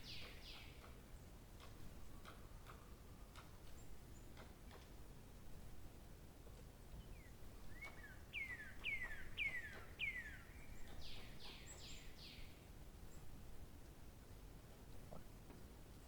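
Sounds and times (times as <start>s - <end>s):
songbird singing: 0.0s - 0.9s, 7.0s - 12.6s
faint outdoor background: 0.0s - 16.0s.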